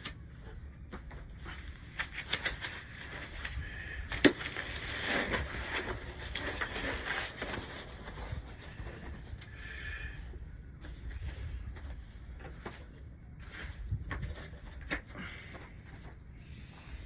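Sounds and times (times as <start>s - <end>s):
packaging rustling and clicks: 0.9s - 9.4s.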